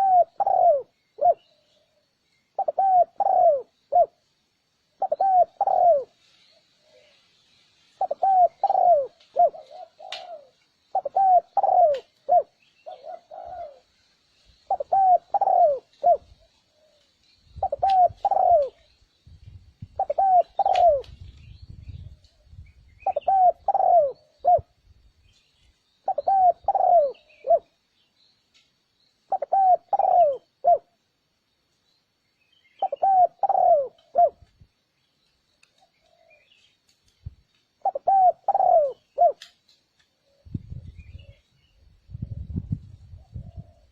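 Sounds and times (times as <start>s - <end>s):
dove cooing: 0.0s - 2.0s, 2.6s - 4.2s, 5.0s - 6.2s, 8.0s - 14.0s, 14.7s - 17.0s, 17.6s - 18.9s, 20.0s - 21.2s, 23.0s - 24.8s, 26.0s - 27.8s, 29.3s - 31.0s, 32.8s - 34.5s, 35.7s - 36.5s, 37.8s - 39.5s, 42.2s - 43.9s.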